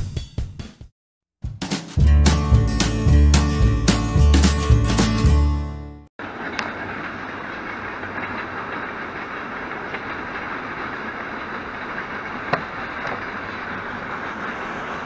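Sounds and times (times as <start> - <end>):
distant freight train wheels on rails: 6.2 - 15.0.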